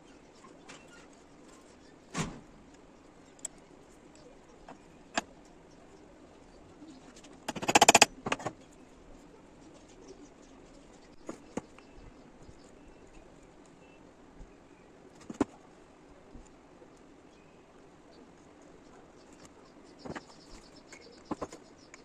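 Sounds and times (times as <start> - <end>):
knocks and clicks: 7.5 - 8.5.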